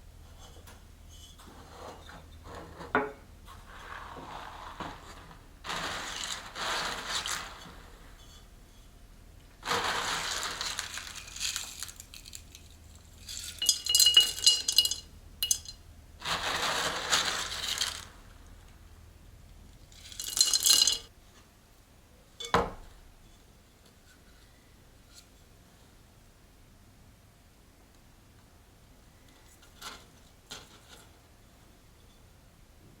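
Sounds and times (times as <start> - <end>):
hands rustling and scraping pot: 0.2 - 18.9, 19.6 - 21.1
ceramic pot clinking: 13.2 - 15.8, 20.1 - 21.1, 22.4 - 22.8.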